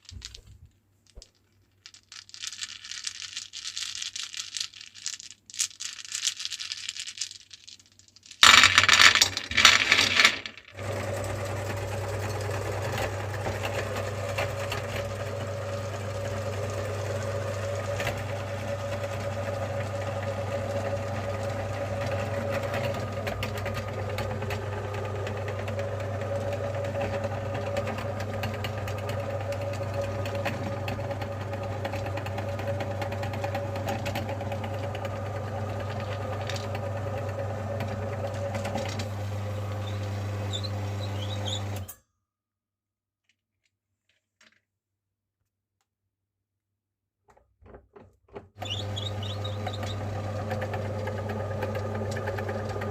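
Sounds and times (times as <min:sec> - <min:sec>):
loud rough grinding noise: 0:08.9 - 0:41.8, 0:48.6 - 0:52.9
electric meat grinder motor humming: 0:10.8 - 0:41.8, 0:48.6 - 0:52.9.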